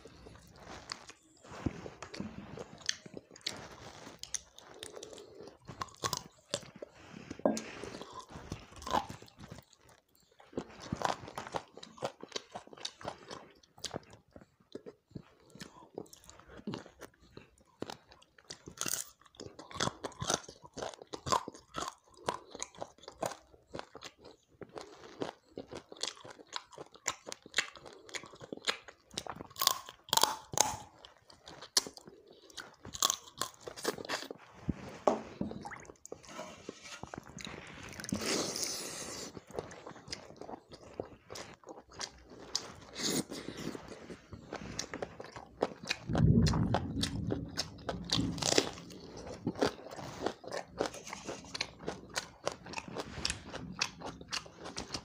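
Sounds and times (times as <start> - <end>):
crunchy chewing of fried chicken: 0.0 - 55.0.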